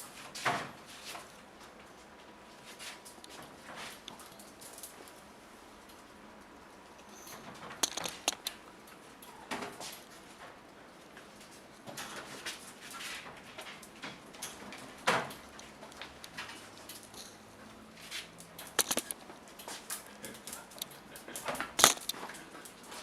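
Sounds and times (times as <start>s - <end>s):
puppy claws clicking: 18.5s - 19.2s, 19.8s - 22.8s.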